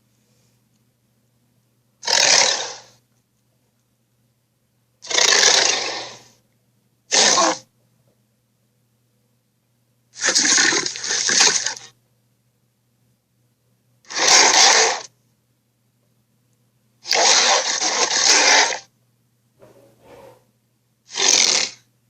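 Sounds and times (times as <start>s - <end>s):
dinosaur harsh raspy calls: 2.0s - 3.0s, 5.0s - 6.4s, 7.1s - 7.6s, 10.2s - 11.9s, 14.1s - 15.1s, 17.0s - 18.9s, 21.1s - 21.8s.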